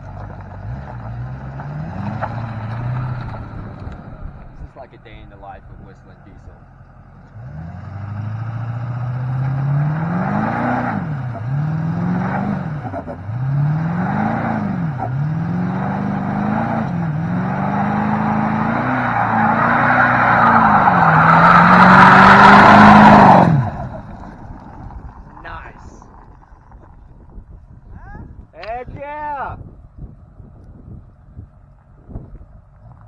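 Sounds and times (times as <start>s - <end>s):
truck engine revving hard: 0.0s - 4.2s, 7.0s - 25.7s
tyres spinning: 7.3s - 27.4s.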